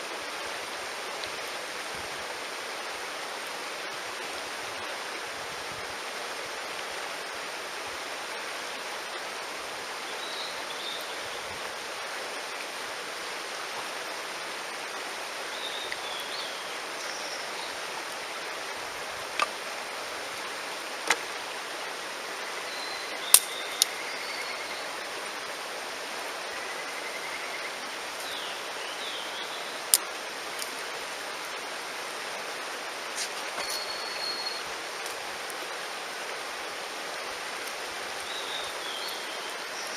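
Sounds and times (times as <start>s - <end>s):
stream rushing: 0.0s - 39.9s
small birds chirping: 37.7s - 39.9s.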